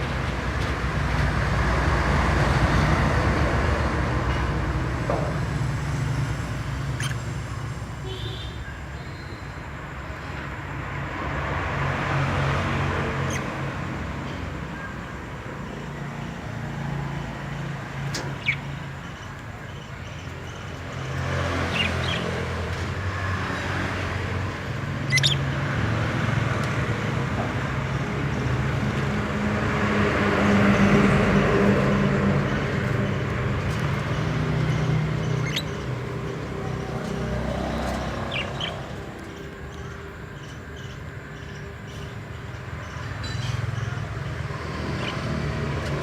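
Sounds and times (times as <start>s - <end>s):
road traffic passing: 0.0s - 46.0s
bird chirps: 6.8s - 9.6s, 13.2s - 13.6s, 18.0s - 22.7s, 24.9s - 25.6s, 34.0s - 45.6s.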